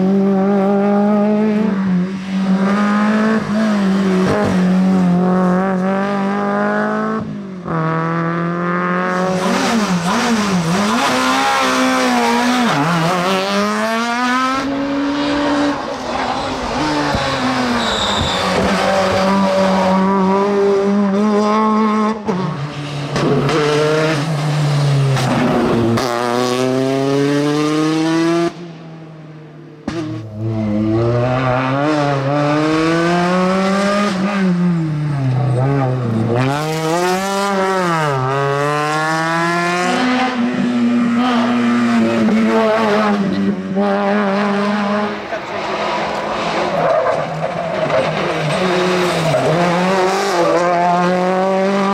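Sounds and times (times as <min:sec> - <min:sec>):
rally car engine revving: 0:00.0 - 0:51.9
tyre squeal: 0:15.8 - 0:19.6.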